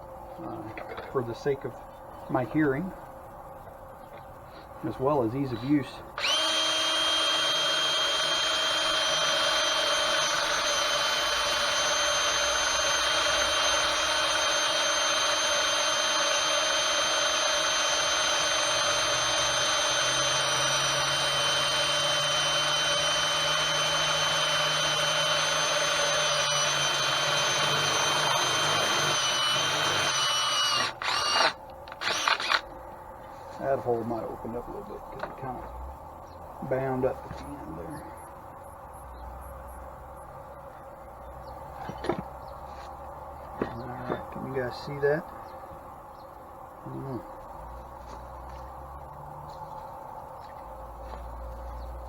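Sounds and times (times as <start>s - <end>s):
electric drill drilling metal: 6.2s - 32.6s.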